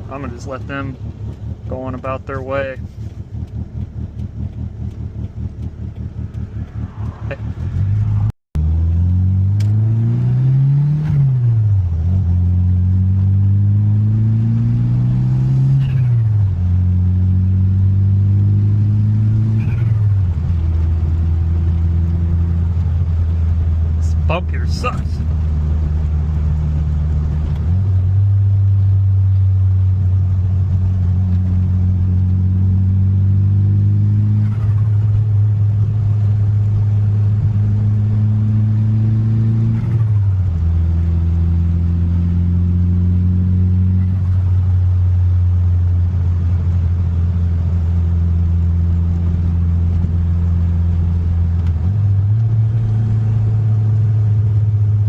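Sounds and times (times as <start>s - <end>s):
car engine revving while driving: 0.0s - 55.0s.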